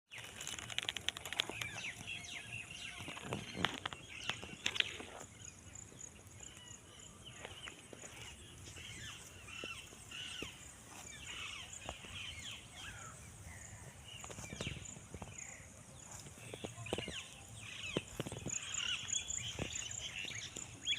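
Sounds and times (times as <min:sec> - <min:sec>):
birds chirping: 0:00.1 - 0:20.9
sharp clicks: 0:00.2 - 0:02.1.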